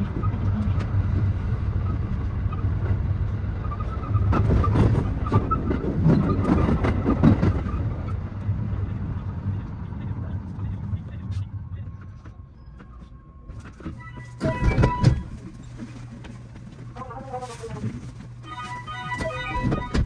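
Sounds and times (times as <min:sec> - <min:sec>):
train running rumble: 0:00.0 - 0:20.0
wheels clacking over rail joints: 0:00.2 - 0:08.9.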